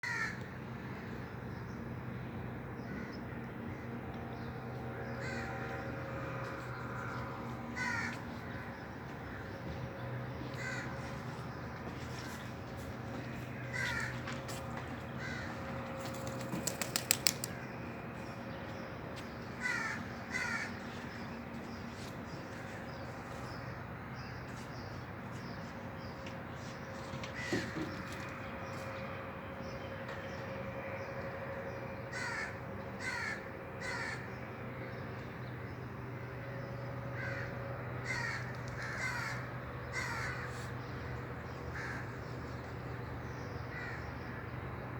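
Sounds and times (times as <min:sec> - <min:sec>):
steady low hum: 0:00.1 - 0:44.9
rapid sharp clicks: 0:16.2 - 0:17.6.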